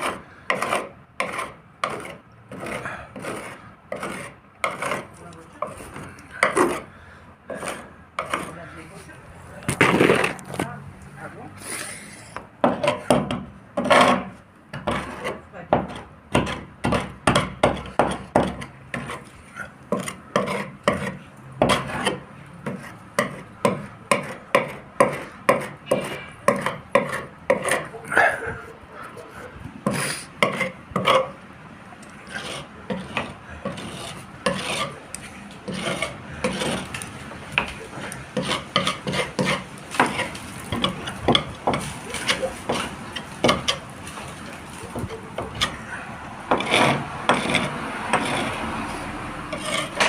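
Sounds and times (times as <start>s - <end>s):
hand rubbing boat hull: 32.2s - 50.0s.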